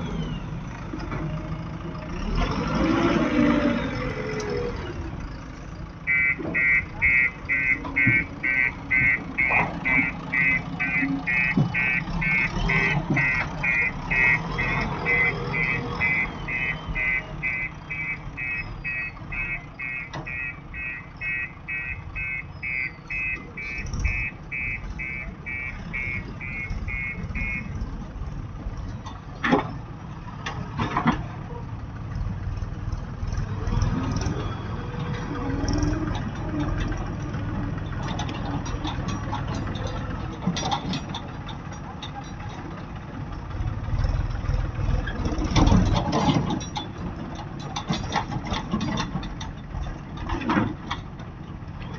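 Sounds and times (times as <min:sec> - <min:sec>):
engine running: 0:00.0 - 0:51.9
reversing alarm beeping: 0:06.1 - 0:27.8.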